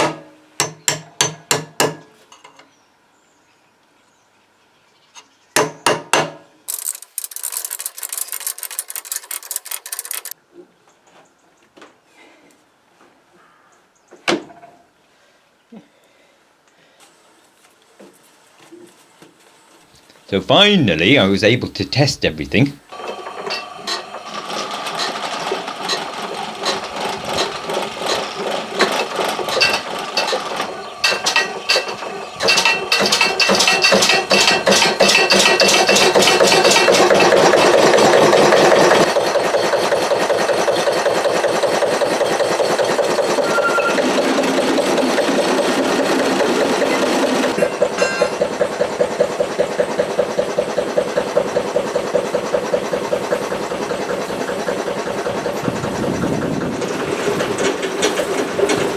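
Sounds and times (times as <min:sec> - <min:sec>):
stationary engine running: 0:35.9 - 0:58.9.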